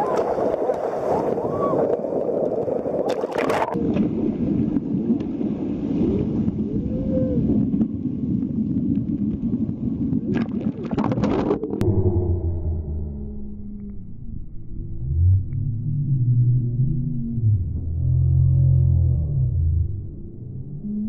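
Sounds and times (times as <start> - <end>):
underwater rushing water: 0.0 - 13.5
whale moans: 6.6 - 7.7, 11.8 - 21.0.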